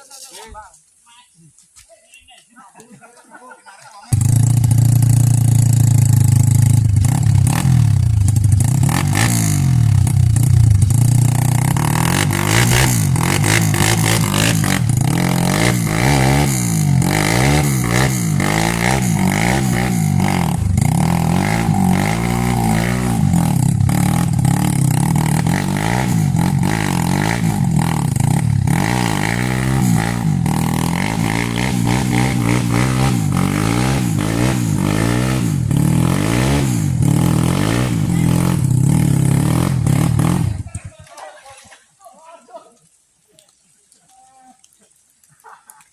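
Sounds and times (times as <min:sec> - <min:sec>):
motorcycle clatter: 0:04.1 - 0:21.8, 0:23.1 - 0:31.9
motorcycle engine revving: 0:04.1 - 0:41.0.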